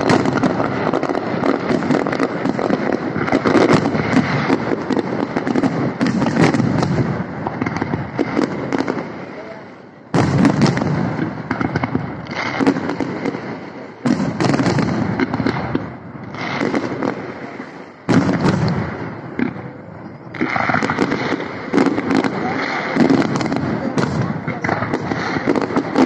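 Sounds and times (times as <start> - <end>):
firework shells bursting: 0.0 - 9.0
firework crackling: 0.0 - 26.0.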